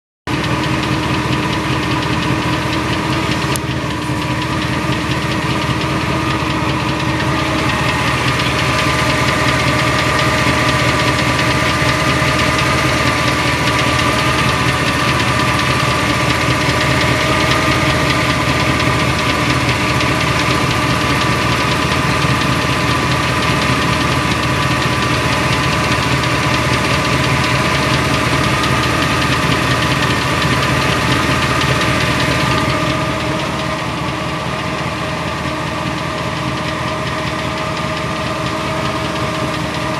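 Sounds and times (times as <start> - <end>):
engine running: 0.3 - 39.9.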